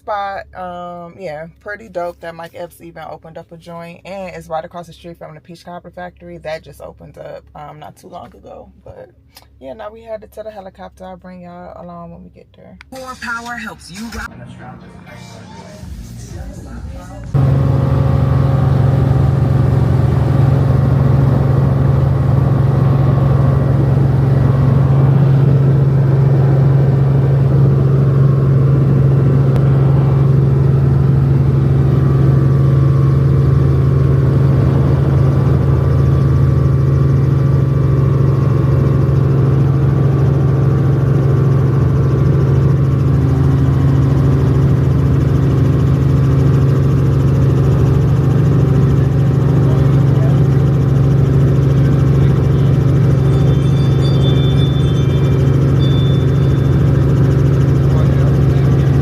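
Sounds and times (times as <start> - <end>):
helicopter rotor drone: 12.9 - 59.0.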